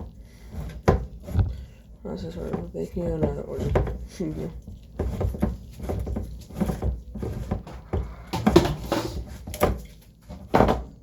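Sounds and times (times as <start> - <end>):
kitchen utensils and dishes clattering: 2.2 - 10.9.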